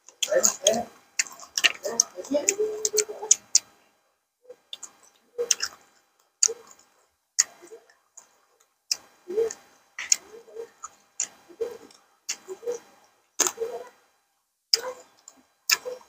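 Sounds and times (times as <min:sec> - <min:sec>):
wet chewing: 0:00.0 - 0:03.8, 0:04.5 - 0:14.0, 0:14.7 - 0:16.0
lip smacks: 0:04.6 - 0:07.6, 0:08.9 - 0:13.6, 0:14.7 - 0:15.9.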